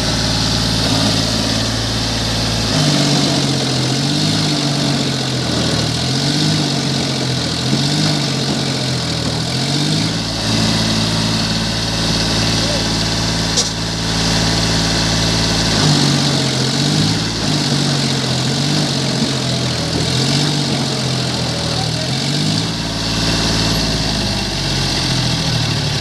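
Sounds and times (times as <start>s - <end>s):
tractor engine revving: 0.0s - 26.0s
sharp click: 13.6s - 13.8s.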